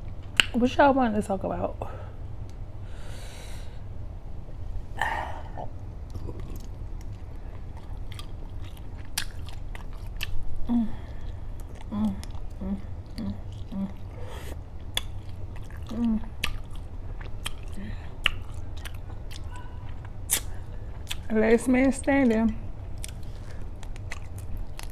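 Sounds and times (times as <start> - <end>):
chewing and biting shrimp: 5.0 - 21.3, 22.9 - 24.9
sharp mouth clicks: 17.4 - 21.3.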